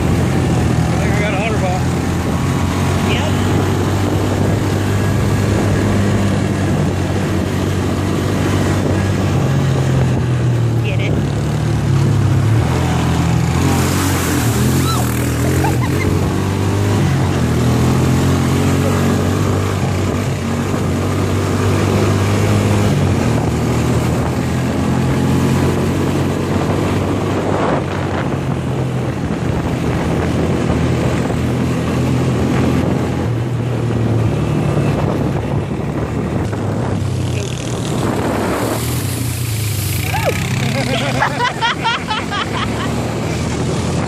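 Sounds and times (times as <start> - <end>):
atv engine running: 0.0 - 44.0.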